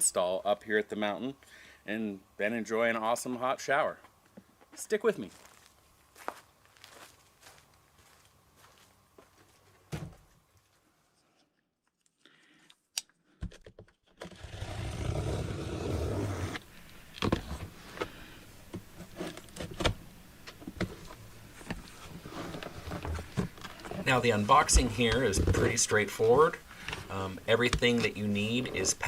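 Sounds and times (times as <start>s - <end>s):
cardboard scraping and rustling: 14.2s - 16.6s, 21.8s - 26.6s.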